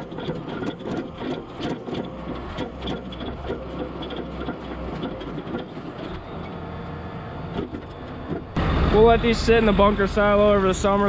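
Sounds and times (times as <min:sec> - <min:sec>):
metal implement rattling: 0:00.0 - 0:06.2
tractor engine hum: 0:00.0 - 0:11.0.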